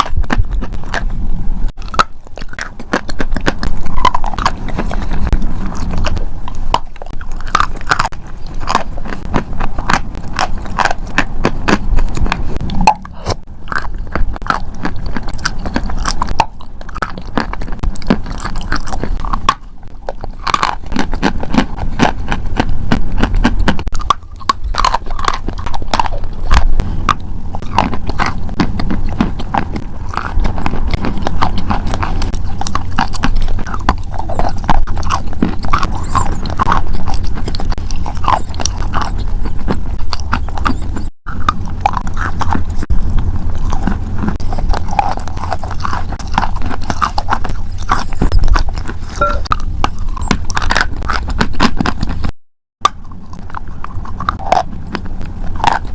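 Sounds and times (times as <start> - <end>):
crunching and chewing: 0.0 - 55.9.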